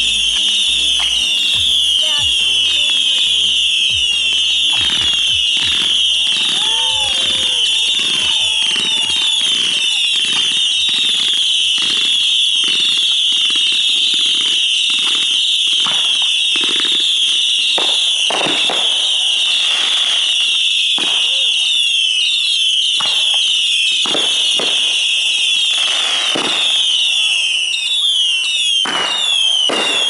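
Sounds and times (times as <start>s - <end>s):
firework shells bursting: 0.0s - 16.0s.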